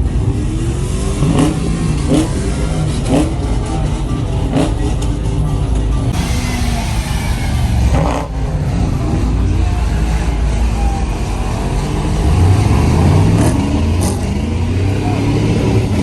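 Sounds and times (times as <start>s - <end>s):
vehicle engines revving: 0.0s - 16.0s.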